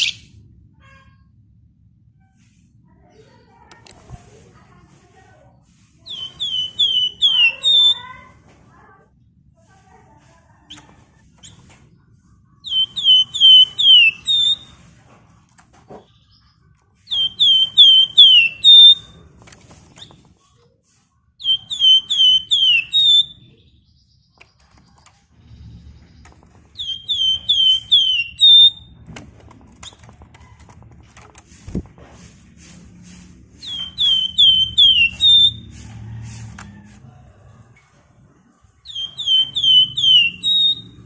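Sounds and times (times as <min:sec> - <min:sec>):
bird singing whistles: 0:06.1 - 0:08.0, 0:12.6 - 0:14.7, 0:17.1 - 0:19.2, 0:21.4 - 0:23.5, 0:26.8 - 0:28.9, 0:33.6 - 0:35.7, 0:38.8 - 0:41.0.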